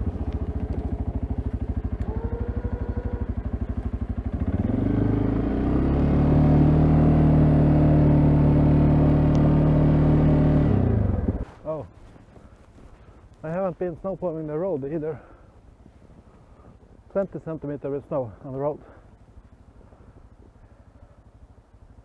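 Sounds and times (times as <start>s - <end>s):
atv engine idling and revving: 0.0s - 11.8s.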